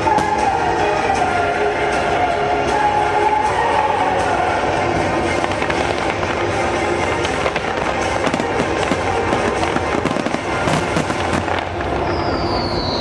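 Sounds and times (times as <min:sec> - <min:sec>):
fireworks crackling and banging: 0:00.0 - 0:01.4, 0:04.6 - 0:12.9
high falling whistle: 0:12.0 - 0:13.0.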